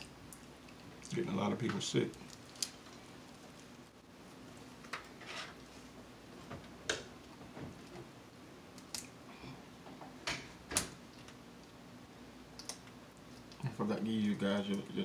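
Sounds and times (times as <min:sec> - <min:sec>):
wet smacking while chewing: 0:00.0 - 0:01.2.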